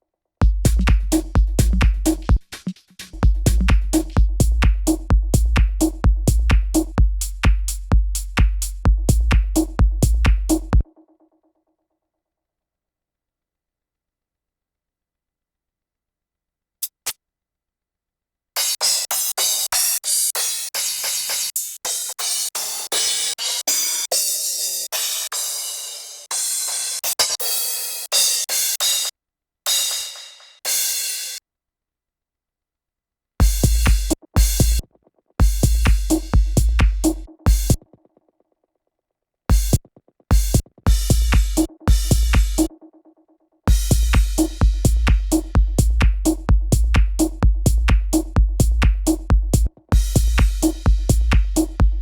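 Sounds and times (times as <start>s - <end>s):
techno drum machine beat: 0.4s - 11.0s, 33.4s - 37.9s, 39.5s - 43.0s, 43.7s - 52.0s
electronic hi-hat hits: 33.4s - 34.8s, 35.4s - 37.8s, 39.5s - 42.7s, 43.7s - 52.0s.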